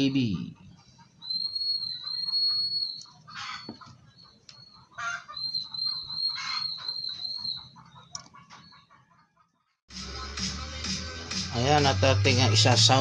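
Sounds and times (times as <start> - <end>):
poultry calling: 0.0 - 9.6.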